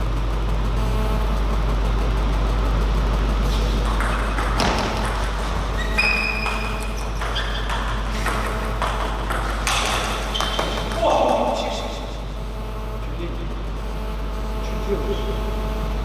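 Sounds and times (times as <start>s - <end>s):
steady low hum: 0.0s - 16.0s
table tennis ball hits: 3.8s - 11.6s.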